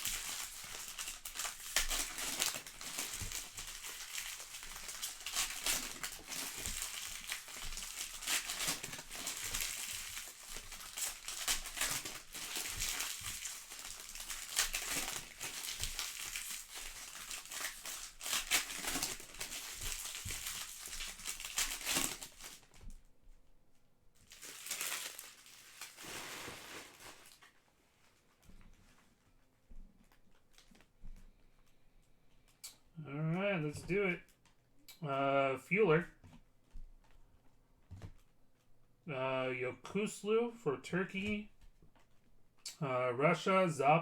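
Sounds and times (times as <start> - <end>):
plastic wrappers crinkling: 0.0 - 23.1, 24.2 - 29.1.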